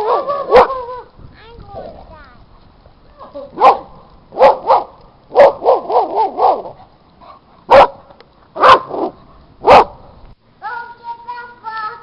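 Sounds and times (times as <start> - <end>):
dog barking: 0.0 - 0.8, 3.6 - 10.0.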